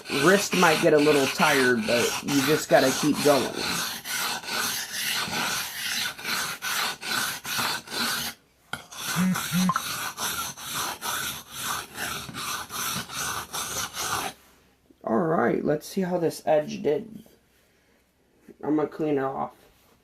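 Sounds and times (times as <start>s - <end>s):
knife rasping on whetstone: 0.0s - 14.4s.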